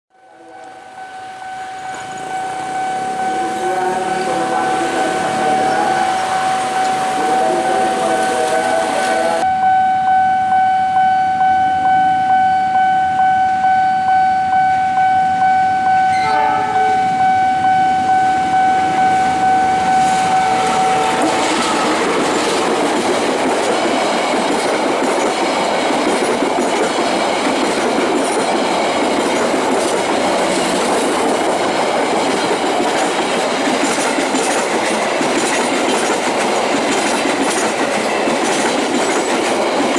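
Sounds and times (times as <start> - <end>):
train horn long note: 0.2 - 22.5
train passing rolling noise: 0.2 - 39.9
wheels clacking over rail joints: 20.0 - 39.9.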